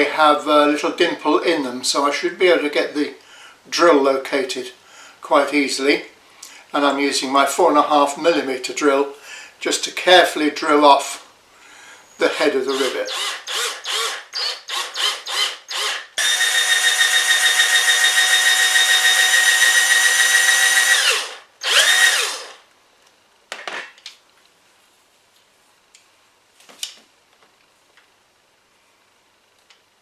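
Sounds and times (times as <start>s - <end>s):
electric drill whining: 12.8s - 22.6s.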